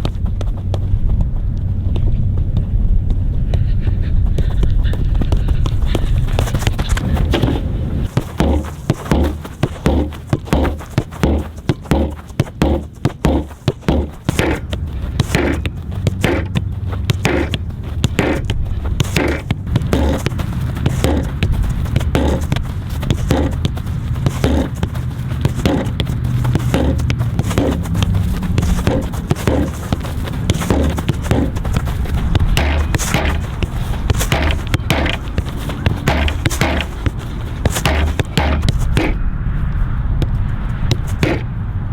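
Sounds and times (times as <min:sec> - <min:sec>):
steady low rumble: 0:00.0 - 0:41.9
ball being kicked: 0:04.3 - 0:39.3, 0:40.2 - 0:41.5.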